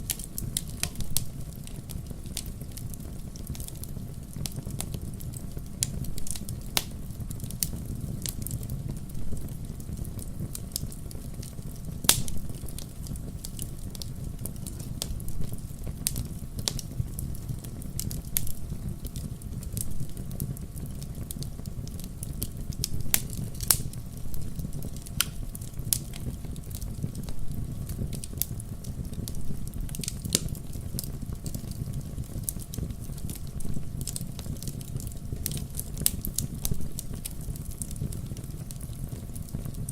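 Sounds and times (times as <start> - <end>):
firewood crackling and popping: 0.0 - 39.9
low rumble of flames: 0.0 - 39.9.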